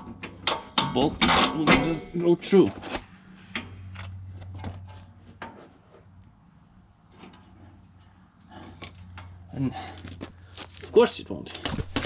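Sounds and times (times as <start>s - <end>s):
light metallic clicks and knocks: 0.0s - 2.4s.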